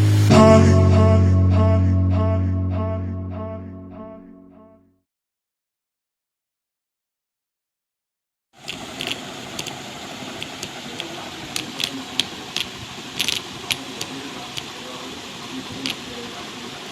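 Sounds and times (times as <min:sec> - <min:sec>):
sharp clicks and rattles: 0:08.6 - 0:14.8, 0:15.7 - 0:16.1
small motor whirring: 0:08.6 - 0:14.8.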